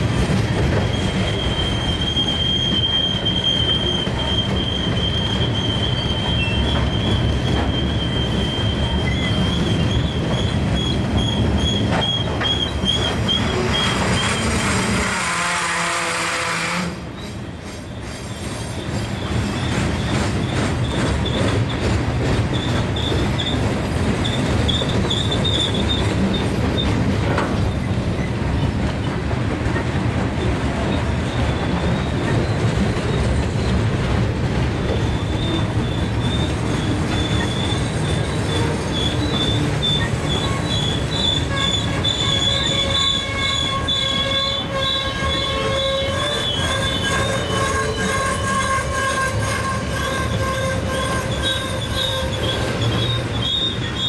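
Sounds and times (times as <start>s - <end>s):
train wheels rumbling on rail: 0.0s - 54.0s
high wheel squeal: 0.8s - 15.1s, 24.2s - 27.0s, 30.8s - 33.8s, 34.9s - 54.0s.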